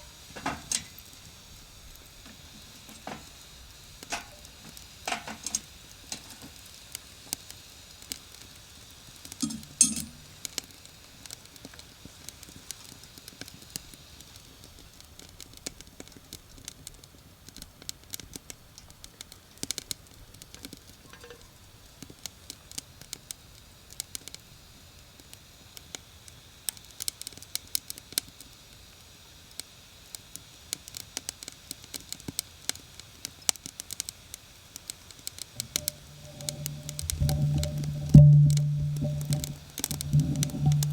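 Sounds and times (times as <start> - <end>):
faint steady hiss: 0.0 - 40.9
campfire crackling and popping: 0.3 - 22.3, 35.2 - 40.9
loud knock: 35.6 - 40.9.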